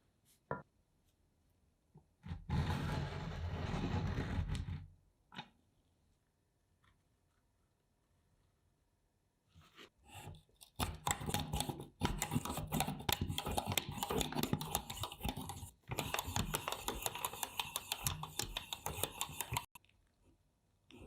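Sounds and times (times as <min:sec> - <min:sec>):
pencil sharpener clicking: 0:10.8 - 0:19.8.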